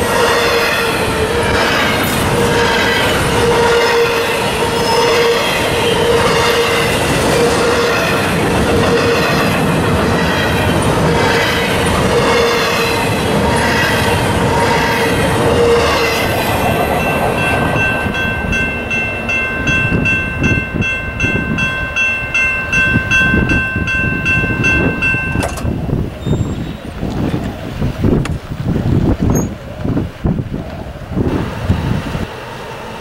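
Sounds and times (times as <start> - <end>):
crossing warning bell ringing: 0.0 - 26.9
wheel squeal: 25.3 - 27.0, 29.3 - 29.6.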